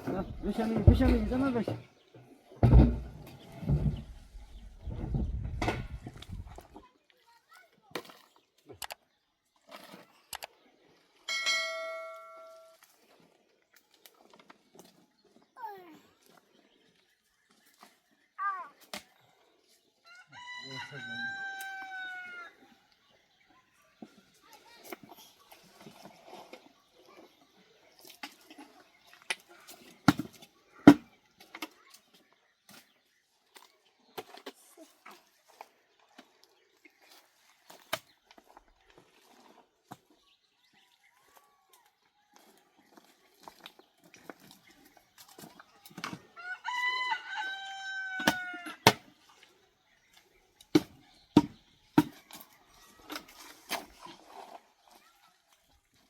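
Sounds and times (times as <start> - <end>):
rooster crowing: 20.1 - 22.6, 46.4 - 48.8.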